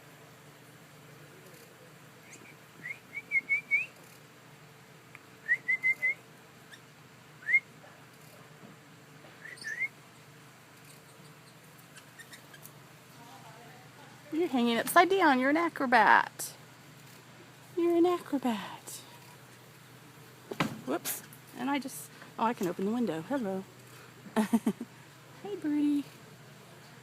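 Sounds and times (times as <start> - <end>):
bird whistling calls: 2.2 - 4.0, 5.4 - 6.8, 9.4 - 10.0.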